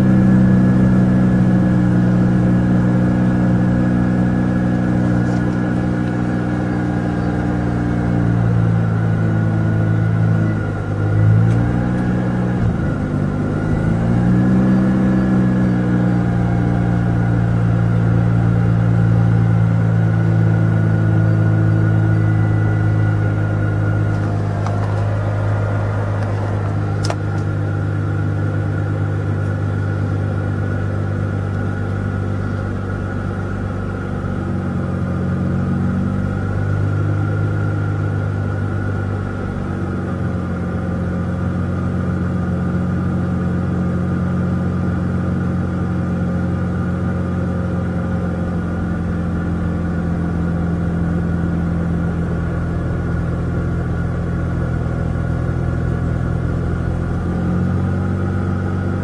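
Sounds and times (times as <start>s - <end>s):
rotary car engine idling: 0.0s - 59.0s.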